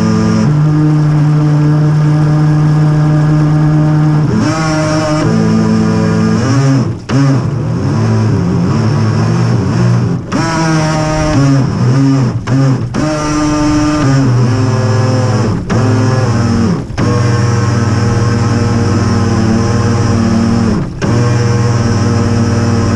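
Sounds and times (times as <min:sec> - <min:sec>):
model boat motor running: 0:00.0 - 0:22.9.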